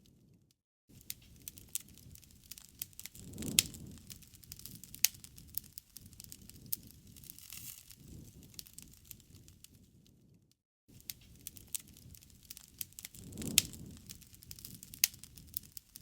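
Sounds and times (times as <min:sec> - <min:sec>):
wood fire crackling: 0:00.9 - 0:16.0.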